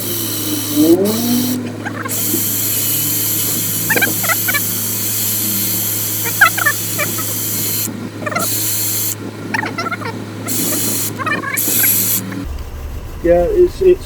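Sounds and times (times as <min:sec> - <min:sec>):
compressed air spraying hiss: 0:00.0 - 0:09.2, 0:10.5 - 0:12.2.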